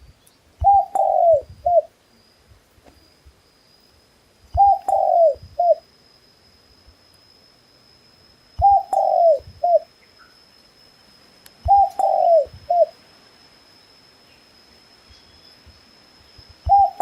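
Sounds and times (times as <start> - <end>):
dove cooing: 0.6 - 1.9, 4.5 - 5.8, 8.6 - 9.9, 11.6 - 13.0, 16.7 - 17.0.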